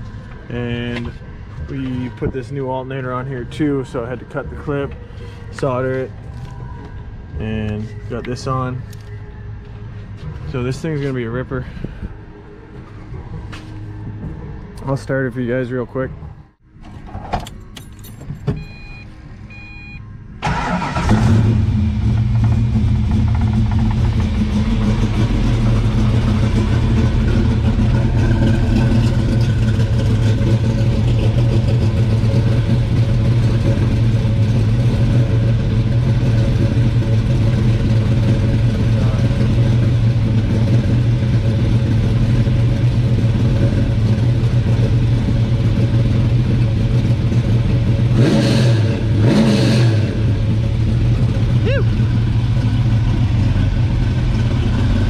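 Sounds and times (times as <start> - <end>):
car engine idling: 20.4 - 48.3, 50.2 - 55.0
car engine cranking: 20.4 - 55.0.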